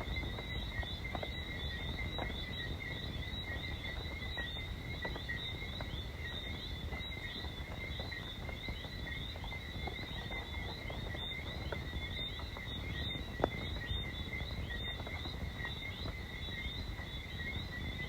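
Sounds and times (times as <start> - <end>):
frogs whistling chorus: 0.0 - 18.0.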